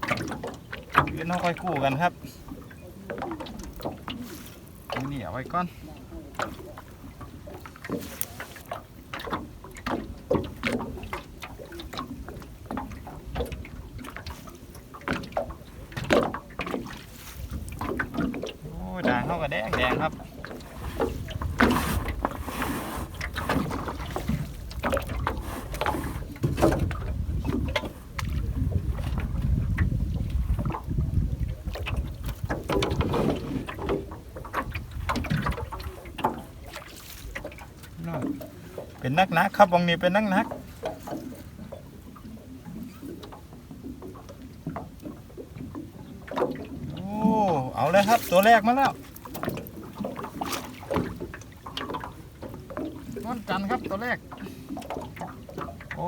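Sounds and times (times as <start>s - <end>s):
water splashing around boat: 0.0s - 56.0s
knocks on boat: 15.0s - 17.0s, 17.6s - 38.4s
wind rumble on microphone: 17.4s - 36.2s
knocks against boat hull: 23.4s - 29.9s.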